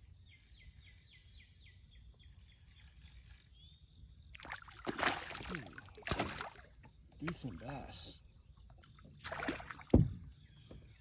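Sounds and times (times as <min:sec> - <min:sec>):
insect chirps: 0:00.0 - 0:11.0
fish splashing in water: 0:04.4 - 0:07.7, 0:09.2 - 0:10.0.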